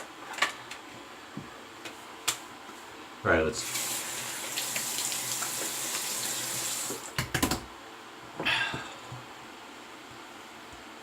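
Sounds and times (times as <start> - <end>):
tap water running into sink: 3.6 - 7.3.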